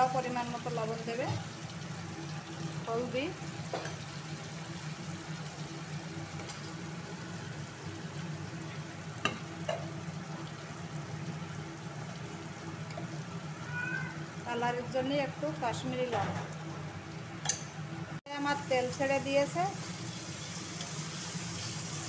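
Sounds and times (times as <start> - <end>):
spice paste sizzling in oil: 18.3 - 22.0.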